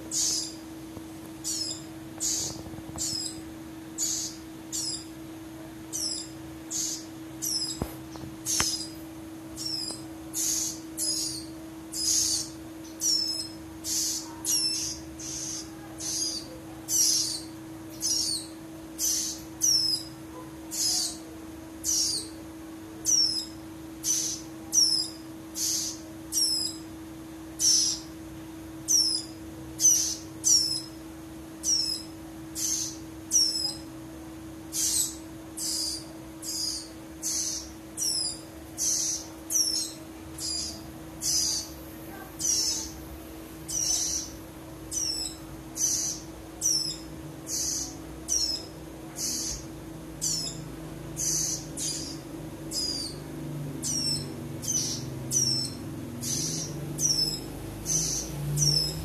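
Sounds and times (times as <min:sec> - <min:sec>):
bird chick calling high chips: 0:00.0 - 0:00.6, 0:01.4 - 0:03.4, 0:04.0 - 0:05.1, 0:05.9 - 0:09.0, 0:09.6 - 0:22.4, 0:23.0 - 0:26.8, 0:34.7 - 0:43.0, 0:43.6 - 0:50.6, 0:51.2 - 0:53.2, 0:53.8 - 0:59.0
steady low hum: 0:00.0 - 0:59.0.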